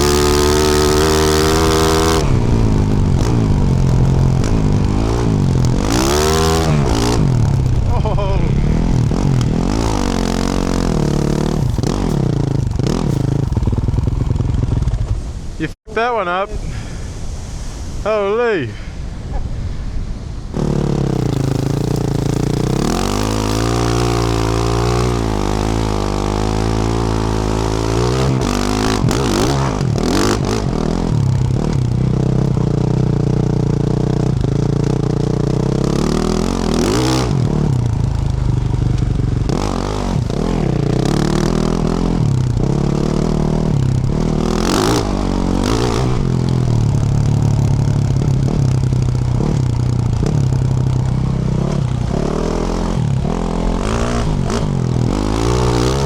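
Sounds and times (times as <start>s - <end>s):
dirt bike engine revving: 0.0s - 15.4s, 20.6s - 56.0s
sharp knocks and clatter: 20.6s - 25.8s.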